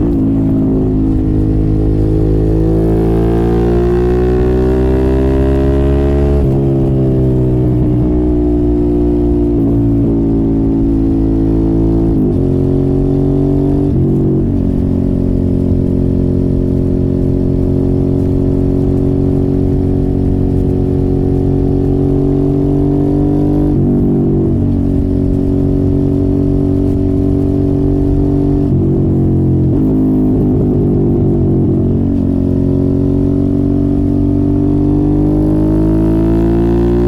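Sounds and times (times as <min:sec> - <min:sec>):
motorcycle engine revving hard: 0:00.0 - 0:08.0, 0:08.6 - 0:37.0.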